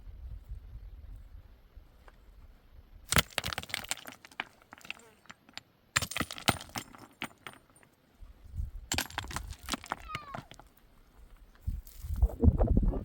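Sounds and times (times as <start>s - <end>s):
hard objects clattering: 3.1s - 7.9s, 8.9s - 10.7s.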